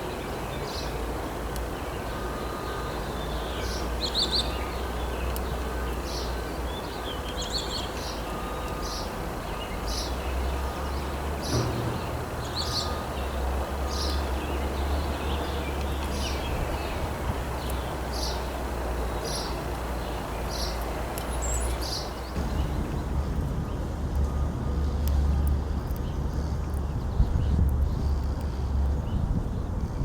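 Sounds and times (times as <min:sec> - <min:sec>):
steady low rumble: 0:22.2 - 0:30.0.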